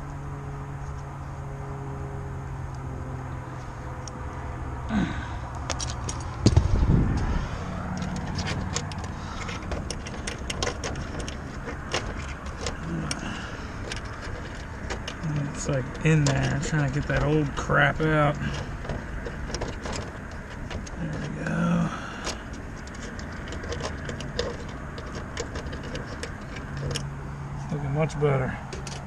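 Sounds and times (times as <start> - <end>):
low hum: 2.3 - 21.5
hand tools clicking on metal: 4.9 - 27.1, 28.1 - 29.0
low thump: 6.4 - 7.6.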